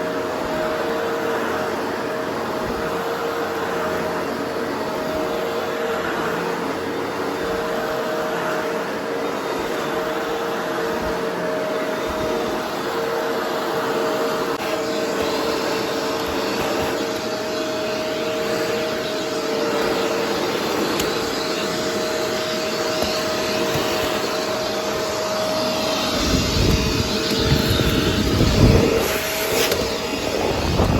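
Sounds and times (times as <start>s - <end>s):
vacuum cleaner running: 0.0s - 30.9s.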